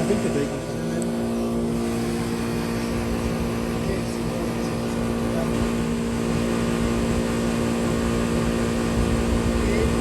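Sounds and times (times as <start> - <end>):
compressor hum: 0.0 - 10.0
condenser fans whooshing: 0.0 - 10.0.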